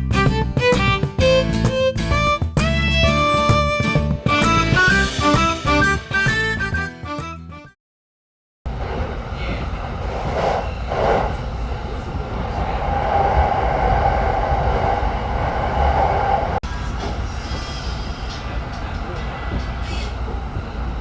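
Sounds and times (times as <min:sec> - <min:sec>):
background music: 0:00.0 - 0:07.7
train running: 0:08.7 - 0:21.0.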